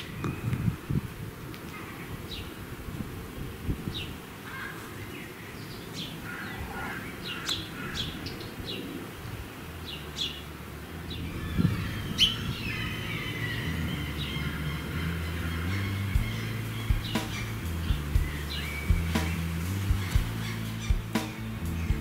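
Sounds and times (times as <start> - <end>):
small birds chirping: 3.9 - 22.0
soft music: 15.1 - 22.0.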